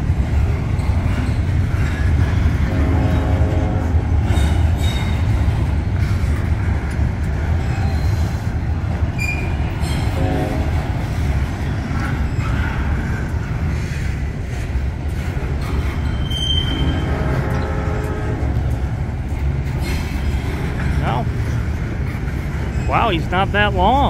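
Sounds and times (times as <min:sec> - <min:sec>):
freight train wheels rumbling: 0:00.0 - 0:24.0
high wheel squeals: 0:04.2 - 0:05.3, 0:09.1 - 0:10.6, 0:15.5 - 0:18.3.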